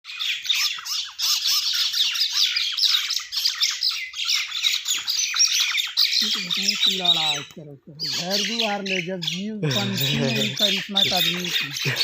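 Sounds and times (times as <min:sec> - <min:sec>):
mynas squawking and chattering: 0:00.1 - 0:12.0.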